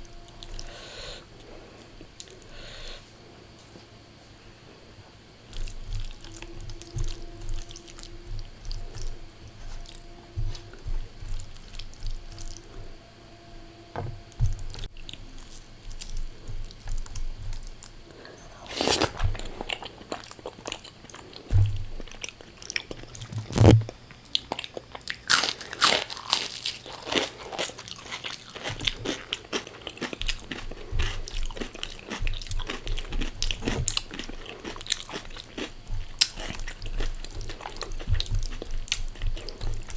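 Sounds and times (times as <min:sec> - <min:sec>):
person chewing: 0:05.5 - 0:12.8, 0:14.0 - 0:39.9
crunching crisp fried food: 0:18.6 - 0:39.9.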